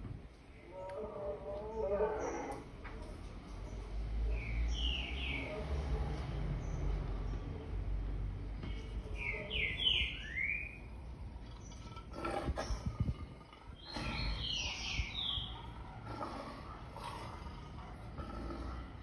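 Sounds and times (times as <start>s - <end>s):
bird chirping: 8.6s - 16.0s.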